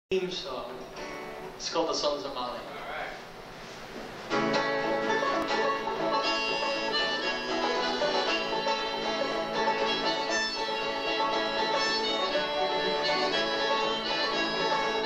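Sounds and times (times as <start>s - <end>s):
folk band playing: 4.1s - 15.0s.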